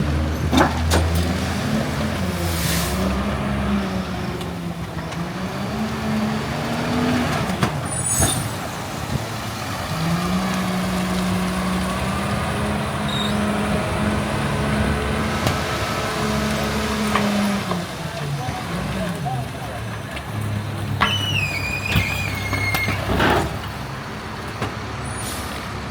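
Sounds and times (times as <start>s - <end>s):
truck diesel engine running: 0.0s - 25.9s
air brake hiss: 25.1s - 25.7s.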